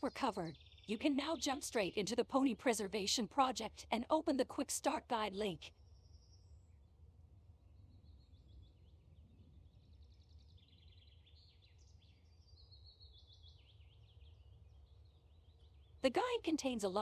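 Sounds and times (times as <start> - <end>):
bird chirps: 7.8 - 16.8.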